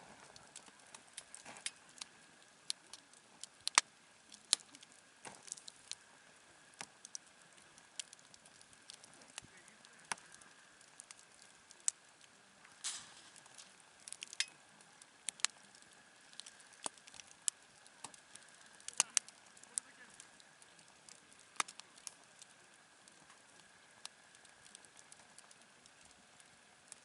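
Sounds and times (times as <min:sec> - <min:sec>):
campfire crackling: 0:00.0 - 0:27.0
sharp pops and snaps of fire: 0:00.0 - 0:27.0.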